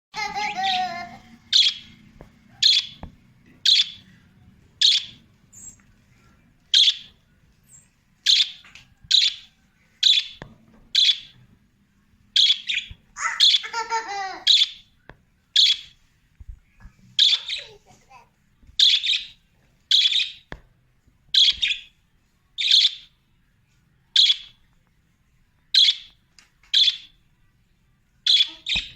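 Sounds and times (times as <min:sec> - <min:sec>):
budgerigars chirping: 0:00.5 - 0:03.0, 0:03.6 - 0:04.2, 0:04.8 - 0:05.8, 0:06.7 - 0:10.4, 0:11.0 - 0:11.4, 0:12.4 - 0:13.8, 0:14.4 - 0:14.9, 0:15.5 - 0:16.0, 0:17.2 - 0:17.7, 0:18.8 - 0:20.5, 0:21.4 - 0:21.9, 0:22.6 - 0:23.1, 0:24.2 - 0:24.6, 0:25.8 - 0:27.1, 0:28.3 - 0:28.9
budgerigar warbling chatter: 0:02.6 - 0:03.0, 0:17.2 - 0:17.8.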